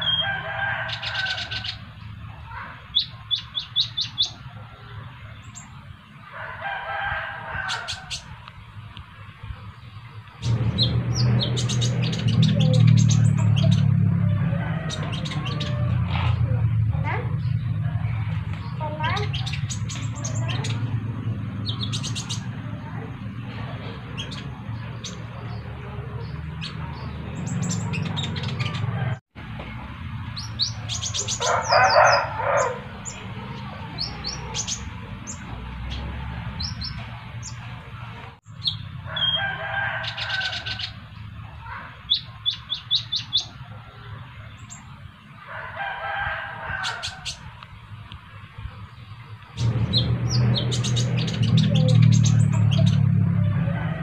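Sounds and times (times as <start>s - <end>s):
birds chirping: 0.0s - 54.0s
birds twittering: 0.0s - 54.0s.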